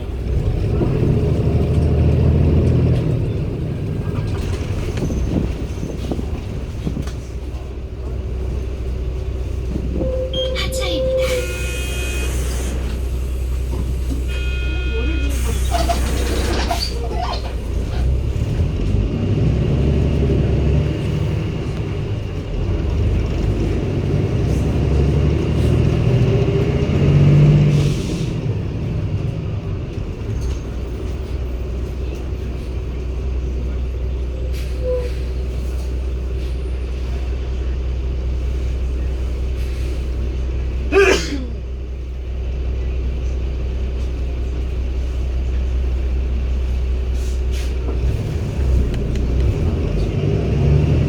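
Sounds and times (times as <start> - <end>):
bus diesel engine: 0.0 - 51.0
short beeps: 10.0 - 12.5, 14.3 - 15.6.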